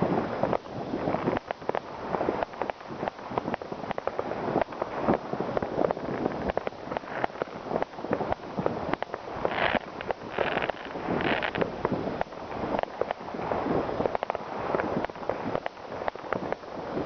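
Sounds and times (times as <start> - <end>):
fireworks rumble of bangs: 0.0 - 16.6
sharp firework cracks: 1.0 - 16.7.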